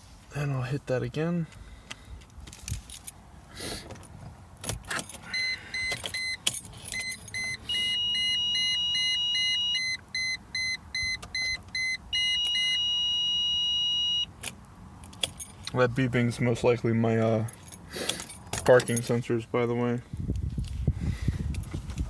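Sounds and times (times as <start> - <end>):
electronic warning beeps: 5.3 - 6.4, 7.0 - 14.3.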